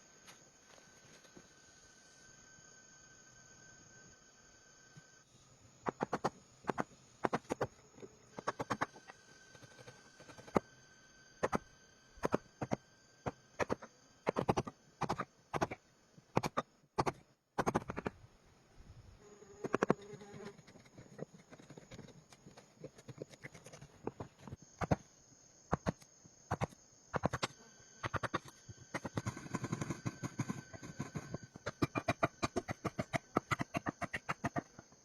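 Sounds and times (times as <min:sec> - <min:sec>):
steady high-pitched tone: 0:00.0 - 0:16.6
sharp knocks and clicks: 0:16.4 - 0:18.1, 0:25.7 - 0:34.8.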